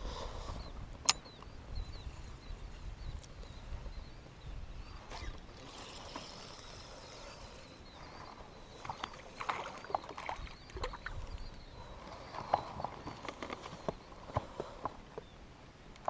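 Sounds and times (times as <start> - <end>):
water splashing around kayak: 8.8 - 11.3.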